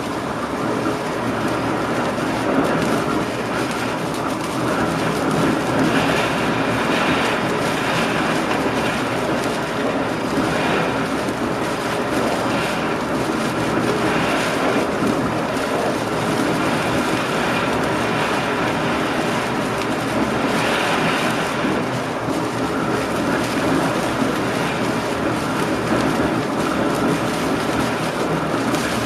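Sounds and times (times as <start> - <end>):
train wheels on rails: 1.3 - 29.0.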